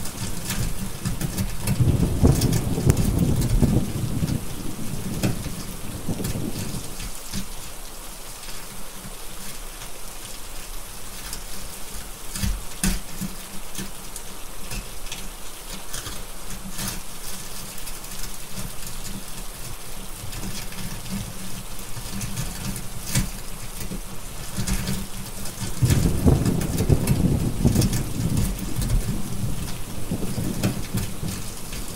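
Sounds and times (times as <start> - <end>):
steady rain: 0.0 - 31.9
deep thunder rumble: 1.7 - 7.0, 25.7 - 31.9
fire crackling: 10.8 - 31.9.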